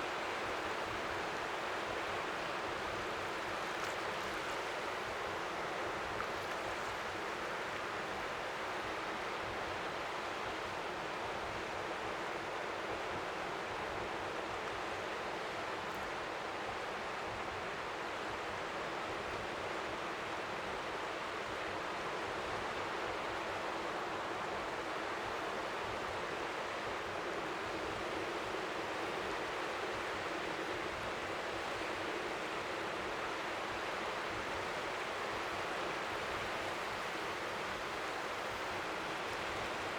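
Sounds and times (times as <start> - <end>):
faint waves lapping: 1.7 - 8.4.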